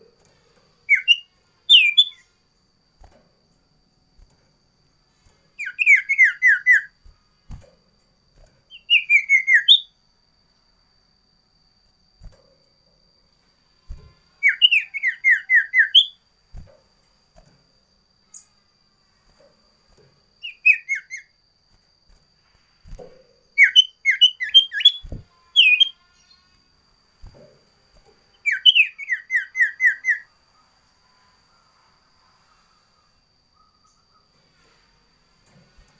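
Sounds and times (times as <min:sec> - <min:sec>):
bird whistling song: 0:00.8 - 0:02.3, 0:05.5 - 0:07.6, 0:08.7 - 0:10.0, 0:13.9 - 0:16.7, 0:18.3 - 0:18.6, 0:20.4 - 0:21.4, 0:22.9 - 0:26.5, 0:28.3 - 0:30.7, 0:33.5 - 0:34.3.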